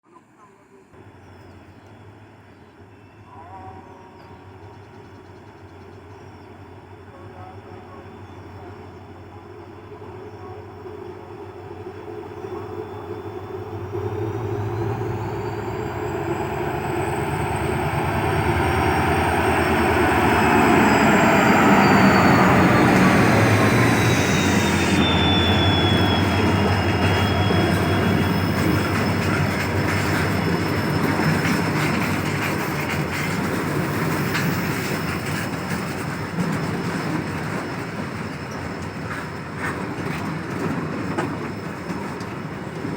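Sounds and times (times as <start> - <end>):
locomotive whine: 0.4 - 42.9
train wagons rumbling: 1.0 - 42.9
wheel clatter on rails: 24.6 - 42.9.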